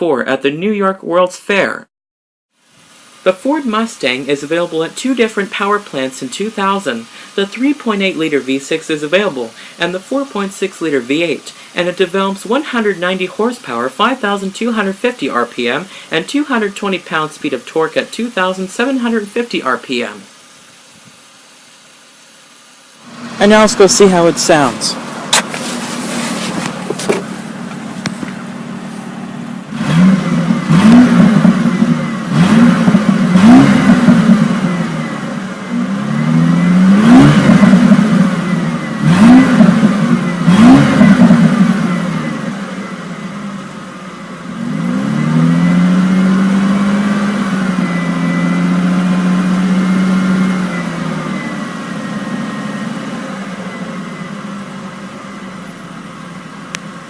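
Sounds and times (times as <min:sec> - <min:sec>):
car engine idling and revving: 0:23.0 - 0:23.4, 0:24.2 - 0:57.0.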